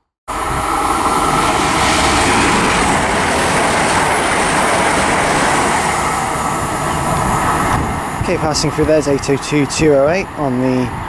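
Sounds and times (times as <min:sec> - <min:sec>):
train passing at speed: 0:00.3 - 0:11.0.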